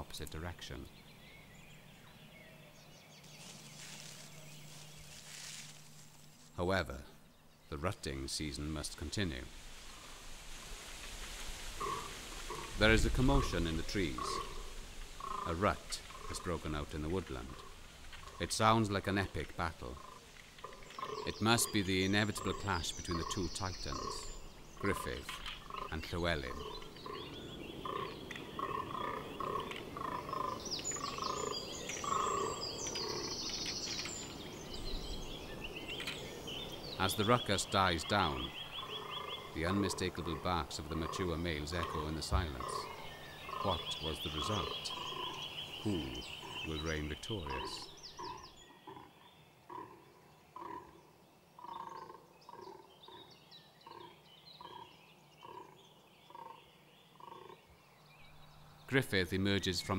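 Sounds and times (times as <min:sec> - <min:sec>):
deer short repeated calls: 0:11.7 - 0:18.6, 0:19.8 - 0:33.3, 0:38.1 - 0:49.0.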